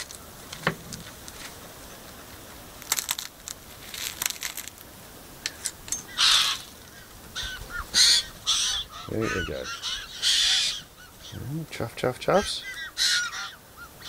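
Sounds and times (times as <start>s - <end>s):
dry biscuits crunching: 2.7s - 4.9s
birds harsh rasping calls: 5.4s - 14.0s.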